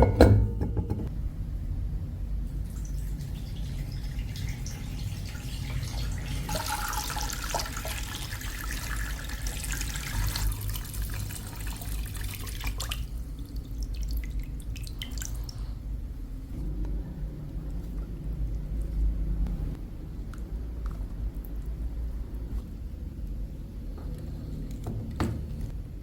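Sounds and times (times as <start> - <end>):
steady low hum: 0.0 - 7.0, 7.8 - 26.0
water drips: 2.6 - 15.7
water running and splashing: 2.7 - 15.5.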